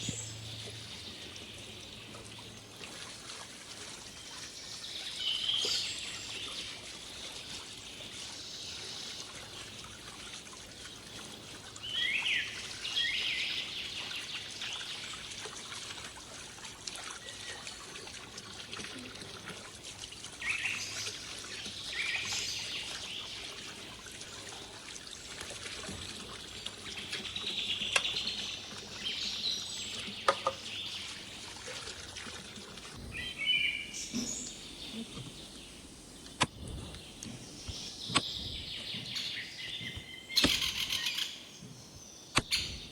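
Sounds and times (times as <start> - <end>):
birds chirping: 33.0 - 42.9.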